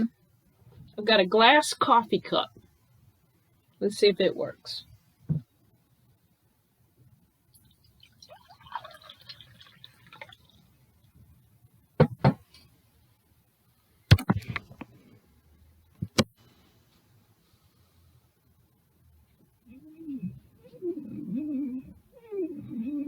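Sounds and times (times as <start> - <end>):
water pouring into a glass cup: 7.6 - 10.8.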